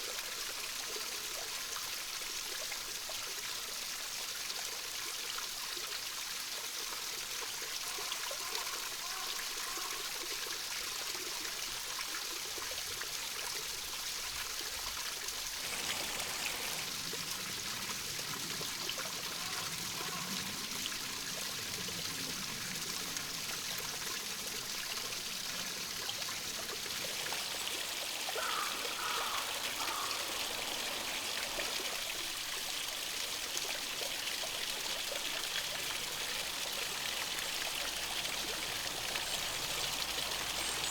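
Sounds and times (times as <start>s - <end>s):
stream trickling: 0.0s - 40.9s
bird calls: 26.9s - 33.5s.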